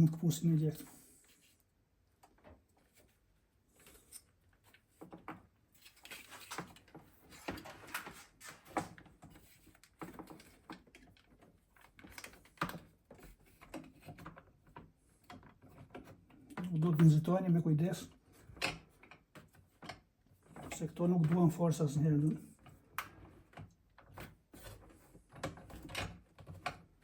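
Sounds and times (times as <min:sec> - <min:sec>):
plastic parts clicking and rustling: 0:03.8 - 0:17.2.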